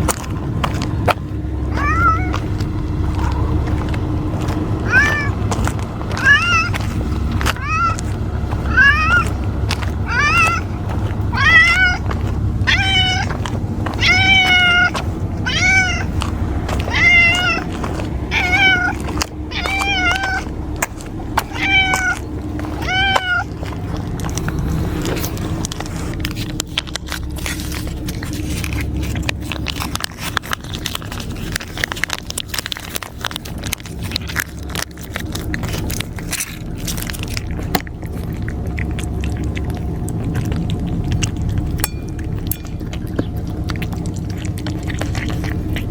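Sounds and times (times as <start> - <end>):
steady low rumble: 0.0 - 45.9
cat meowing: 1.7 - 2.6, 4.8 - 5.5, 6.1 - 16.2, 16.8 - 20.6, 21.4 - 24.4.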